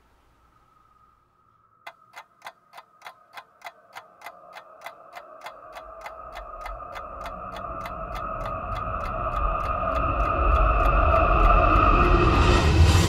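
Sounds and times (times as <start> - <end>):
rapid clock-like ticking: 1.9 - 13.0
steady high drone: 4.4 - 13.0.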